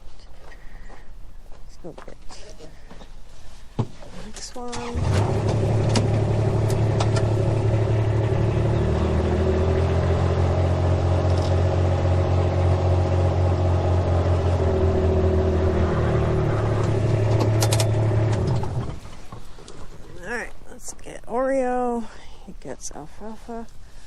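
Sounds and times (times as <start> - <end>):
vehicle engine running: 4.8 - 20.5.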